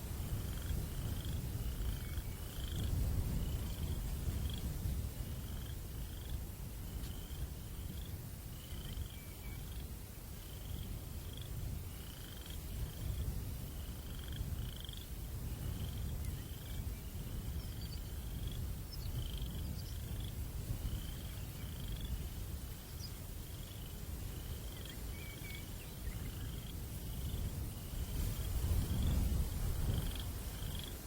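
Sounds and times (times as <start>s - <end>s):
low breeze rumble: 0.0s - 31.0s
insect or frog trilling: 0.3s - 28.0s, 29.9s - 31.0s.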